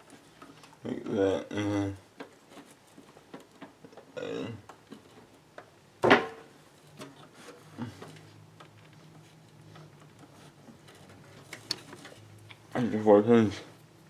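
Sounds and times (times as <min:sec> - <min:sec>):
small clicks and rubbing: 0:06.6 - 0:12.8.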